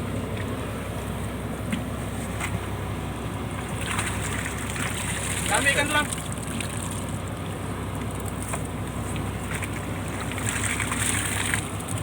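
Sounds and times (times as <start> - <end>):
boat engine humming: 0.0 - 12.0
wash of noise: 3.1 - 12.0.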